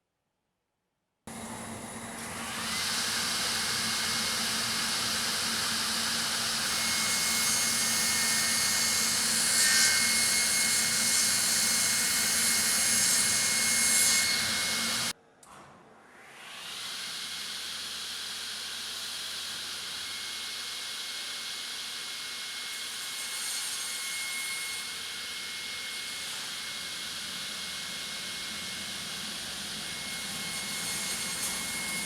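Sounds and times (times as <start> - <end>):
panel saw running: 1.3 - 15.1, 25.0 - 32.0.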